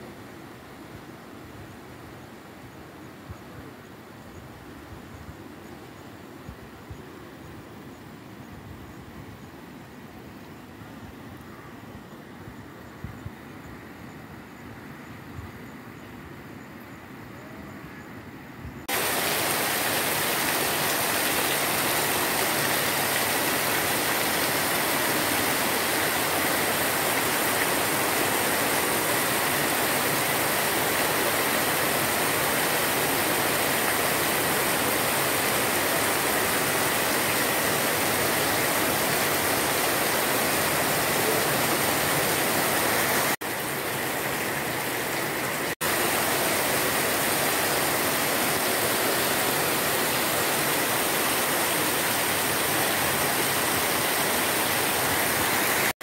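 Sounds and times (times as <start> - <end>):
torrential rain hissing: 18.8 - 56.0.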